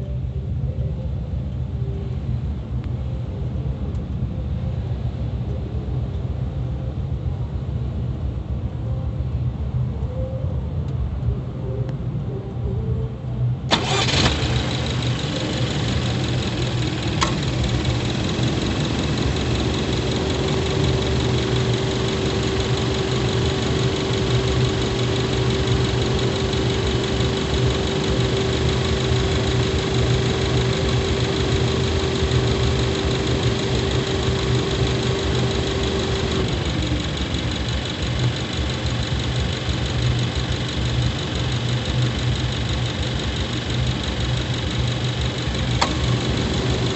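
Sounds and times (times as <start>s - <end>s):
car engine running: 13.7s - 46.9s.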